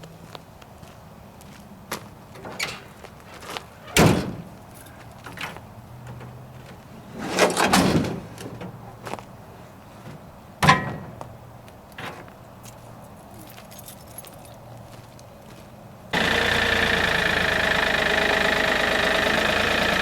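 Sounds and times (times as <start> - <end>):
knocks and clatter: 10.0 - 12.4
rattle: 16.2 - 20.0.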